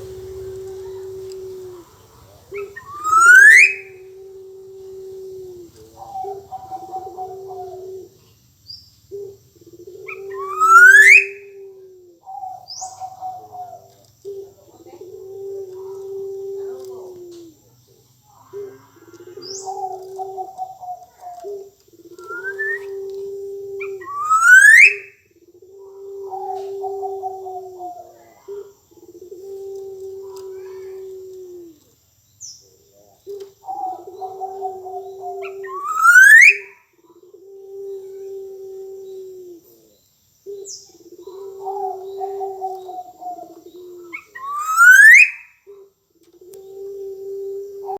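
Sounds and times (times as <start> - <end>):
loud rising whistle: 0.0 - 4.0
bird singing fluty whistles: 0.0 - 4.2, 10.1 - 11.5, 22.2 - 23.0, 23.8 - 25.2, 34.6 - 36.8, 44.1 - 45.6
bird fluttering call: 0.0 - 8.1, 19.1 - 25.1
low buzzing held notes: 0.0 - 44.8.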